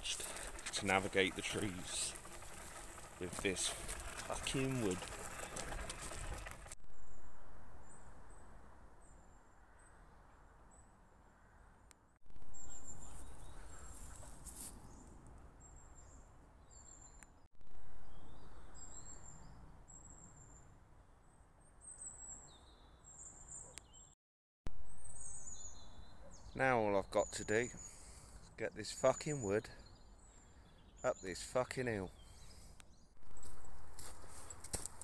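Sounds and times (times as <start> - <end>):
small birds chirping: 0.0 - 6.1, 12.5 - 20.7, 21.7 - 24.2, 25.0 - 35.0.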